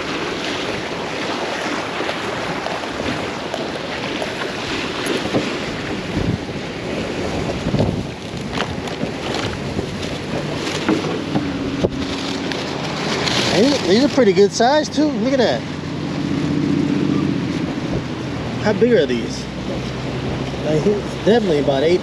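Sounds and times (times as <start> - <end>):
wind blowing across microphone: 0.0 - 22.0.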